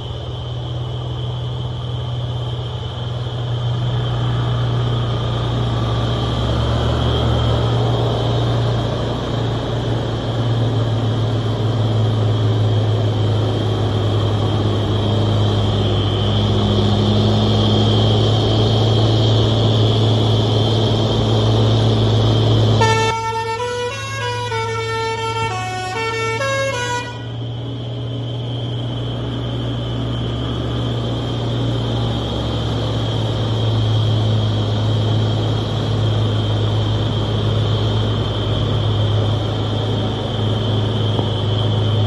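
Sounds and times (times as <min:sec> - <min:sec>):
truck engine droning: 0:00.0 - 0:42.0
horn playing stepped notes: 0:22.8 - 0:27.3.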